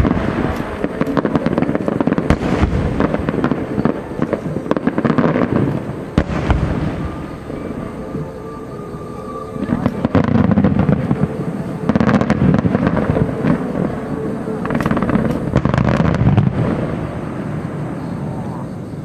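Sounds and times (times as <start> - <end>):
heavy firework boom: 0.0 - 7.8
fireworks bursting and crackling: 0.0 - 19.0.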